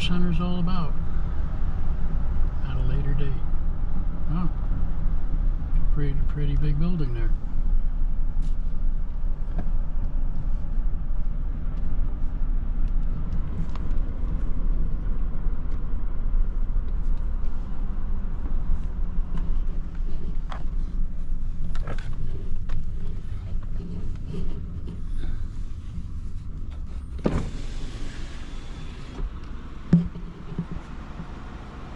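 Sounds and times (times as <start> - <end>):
car engine and tyre rumble: 0.0 - 31.9.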